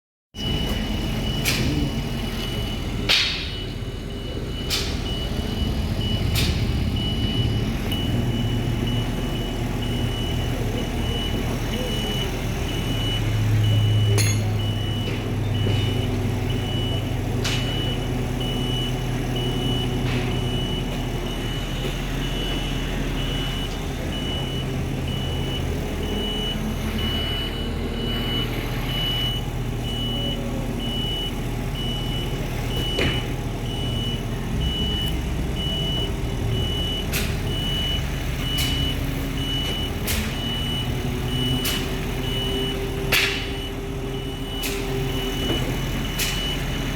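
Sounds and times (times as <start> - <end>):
warning beeper beeping: 0.4 - 46.7
crane engine running under load: 0.4 - 46.9.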